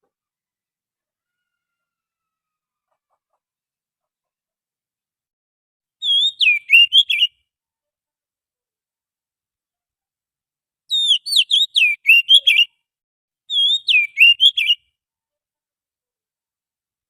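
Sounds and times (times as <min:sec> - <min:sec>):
bird singing whistled notes: 0:06.0 - 0:07.4, 0:10.9 - 0:12.7, 0:13.5 - 0:14.9.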